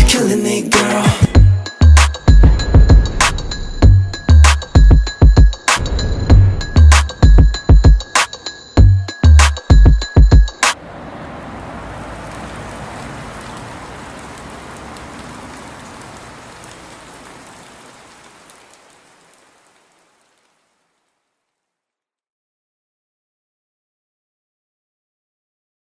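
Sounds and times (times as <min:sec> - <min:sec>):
rain-like hiss with crackles: 0:10.8 - 0:21.8.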